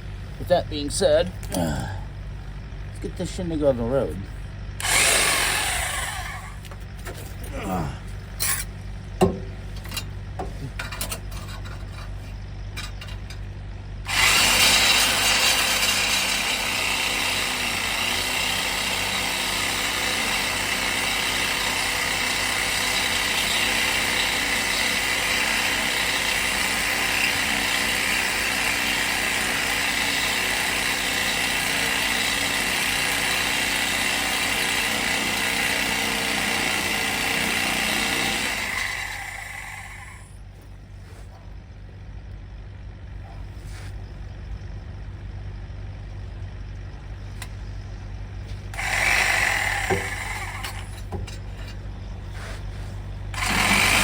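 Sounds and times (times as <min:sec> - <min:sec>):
power saw cutting metal pipe: 0:04.8 - 0:06.7, 0:08.4 - 0:08.7, 0:14.1 - 0:40.4, 0:48.7 - 0:51.8, 0:53.4 - 0:54.0.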